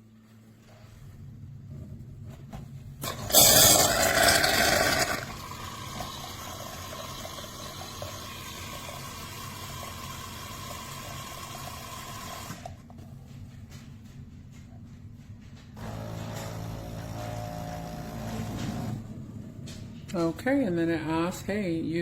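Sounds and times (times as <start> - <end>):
milk frother hissing and gurgling: 3.0 - 12.7.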